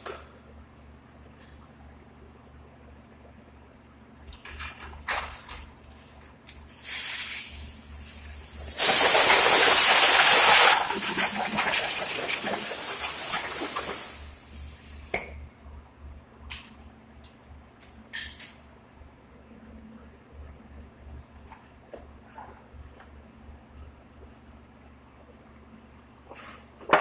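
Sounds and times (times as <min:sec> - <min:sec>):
pressurized air hissing: 0:06.7 - 0:15.1.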